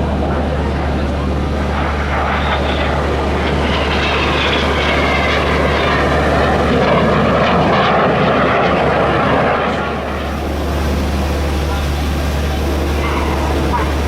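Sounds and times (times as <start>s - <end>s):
turboprop aircraft flying by: 0.0s - 14.0s.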